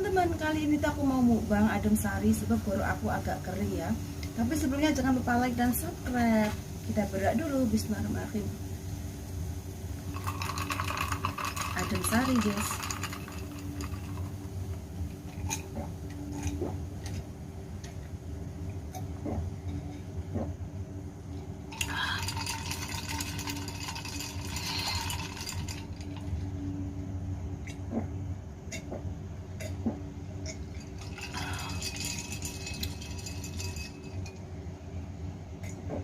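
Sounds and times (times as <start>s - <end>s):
steady low hum: 0.0s - 36.0s
person drinking: 21.7s - 26.4s, 29.6s - 33.6s.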